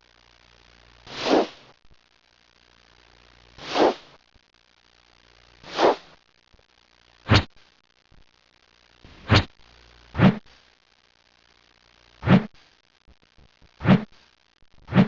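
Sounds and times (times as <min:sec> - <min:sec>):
short hissing whoosh: 0:01.1 - 0:01.7, 0:03.6 - 0:04.2, 0:05.6 - 0:06.2.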